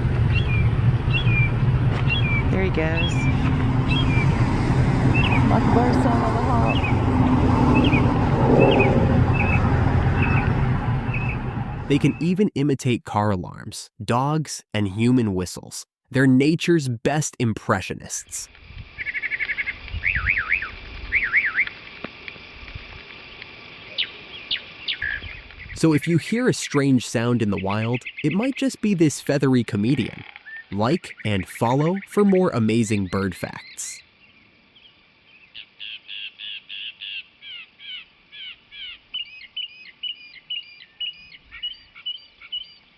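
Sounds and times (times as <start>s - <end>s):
bird rapid chirps: 0.3s - 4.3s, 7.8s - 12.4s, 30.0s - 34.0s
mockingbird singing: 0.3s - 4.4s, 5.1s - 7.1s, 7.7s - 12.4s, 24.0s - 34.0s, 35.4s - 42.9s.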